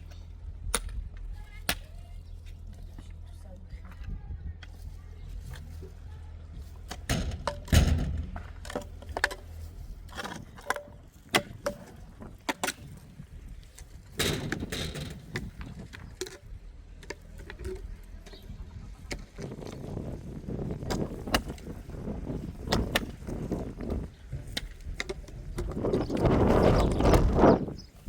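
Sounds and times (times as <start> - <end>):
knocks and clicks of handled objects: 6.6 - 13.0, 13.7 - 19.9, 22.7 - 27.3
heavy thump: 7.0 - 8.6.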